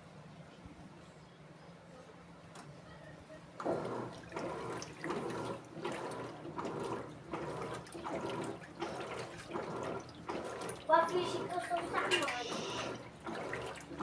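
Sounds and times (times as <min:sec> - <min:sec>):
washing machine water sloshing: 0:03.6 - 0:14.0.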